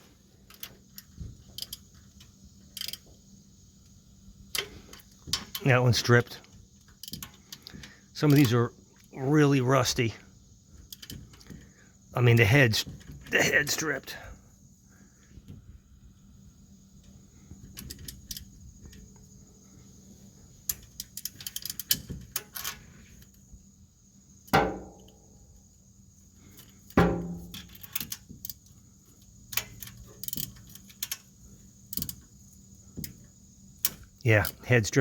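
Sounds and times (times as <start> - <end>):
ringing metallic clanks: 24.6 - 25.4, 27.0 - 28.0.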